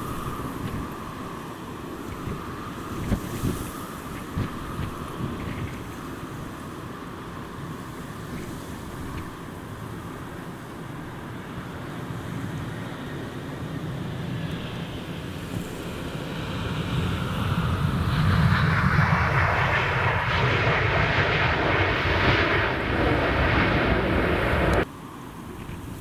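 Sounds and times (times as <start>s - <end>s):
jet engines roaring: 12.7s - 24.9s.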